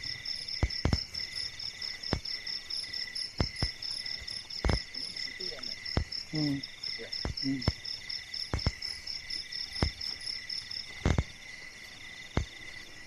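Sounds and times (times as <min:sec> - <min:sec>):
crickets and insects chirping: 0:00.0 - 0:13.0
sharp clicks: 0:00.5 - 0:01.2, 0:03.3 - 0:05.0, 0:07.2 - 0:07.8, 0:08.4 - 0:08.9, 0:09.7 - 0:10.2
person murmuring: 0:06.3 - 0:07.7.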